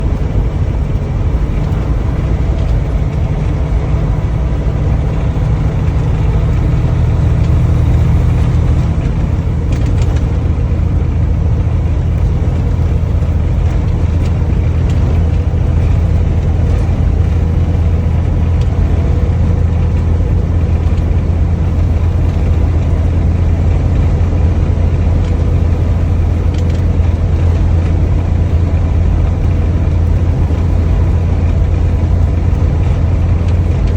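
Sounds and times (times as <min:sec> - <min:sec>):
road noise: 0:00.0 - 0:33.9
truck engine drone: 0:00.0 - 0:33.9.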